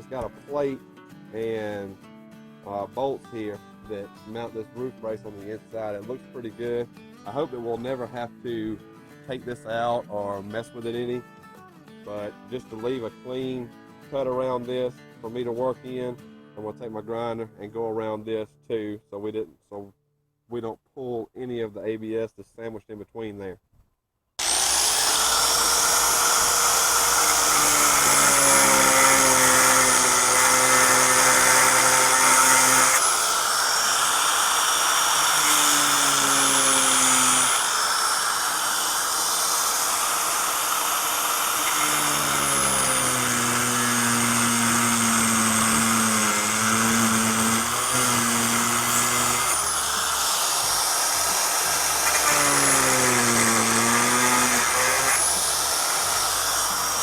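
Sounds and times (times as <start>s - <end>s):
angle grinder cutting metal: 24.4s - 57.0s.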